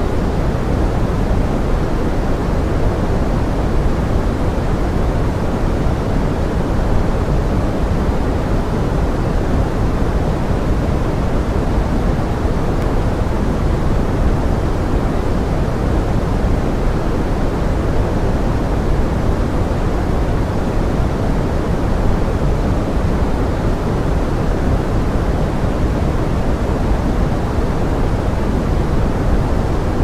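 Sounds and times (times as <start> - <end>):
pink noise hiss: 0.0 - 30.0.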